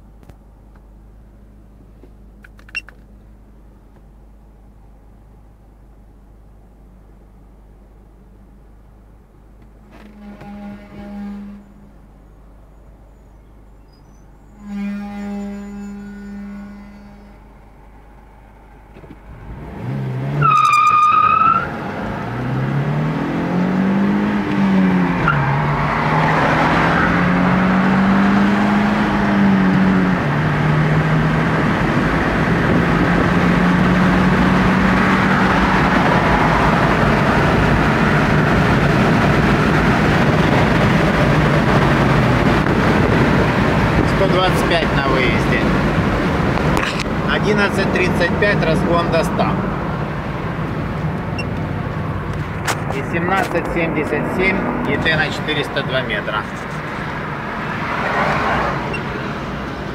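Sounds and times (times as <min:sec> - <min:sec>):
car engine accelerating: 0:17.6 - 0:59.9.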